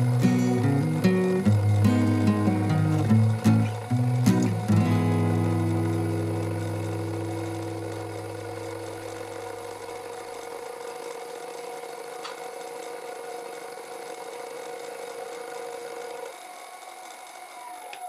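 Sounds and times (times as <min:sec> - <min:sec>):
electric motor whining: 0:00.0 - 0:12.9, 0:15.5 - 0:18.0.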